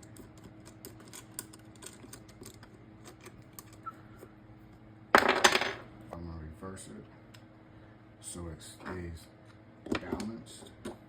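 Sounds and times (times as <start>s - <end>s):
small parts clicking and tapping: 0.0s - 3.9s.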